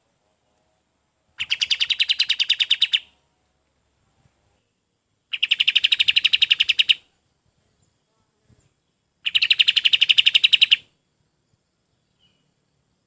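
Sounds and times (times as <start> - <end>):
songbird rattling trills: 1.4 - 3.1, 5.3 - 7.0, 9.2 - 10.8.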